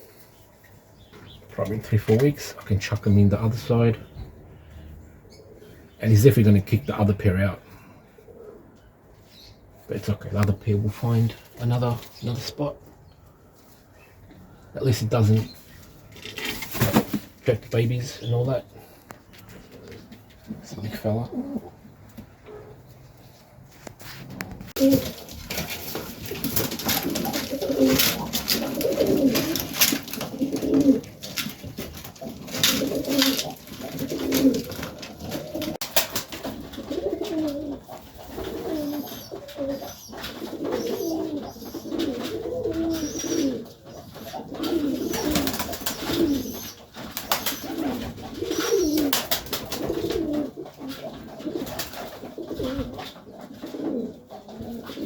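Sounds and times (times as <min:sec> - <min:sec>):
pigeons cooing: 0:03.4 - 0:06.8, 0:07.6 - 0:09.8, 0:18.0 - 0:23.0, 0:24.3 - 0:55.0.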